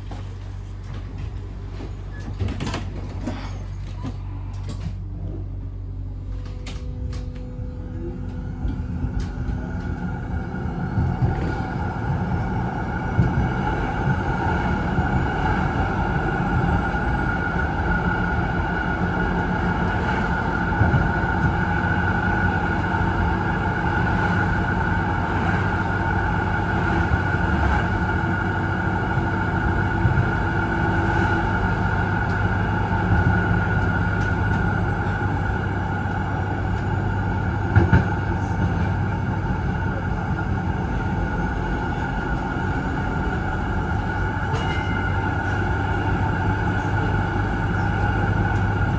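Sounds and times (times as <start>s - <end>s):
tram wheels rumbling on rail: 0.0s - 48.9s
multi-tone hum: 4.0s - 37.8s.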